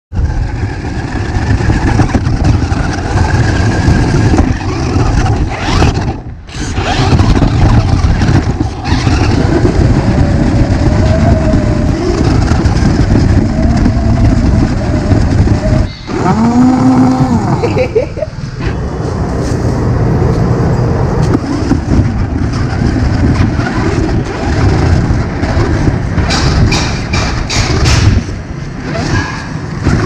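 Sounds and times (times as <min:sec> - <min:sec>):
radio-controlled car motor rumbling: 0:00.2 - 0:18.3, 0:21.2 - 0:26.7.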